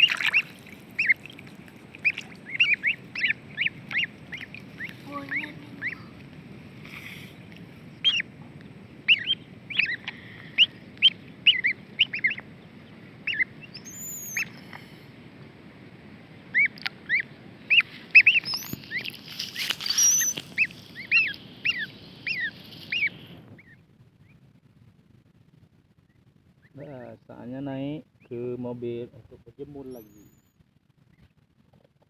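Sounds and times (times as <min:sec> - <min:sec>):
ducklings peeping: 0:00.0 - 0:14.9, 0:16.4 - 0:24.4, 0:26.1 - 0:27.2.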